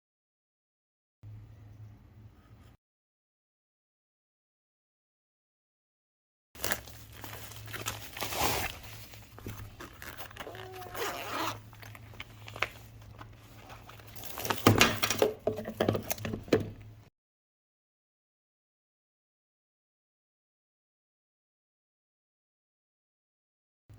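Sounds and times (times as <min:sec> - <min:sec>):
plastic packaging crinkling: 0:06.6 - 0:16.2.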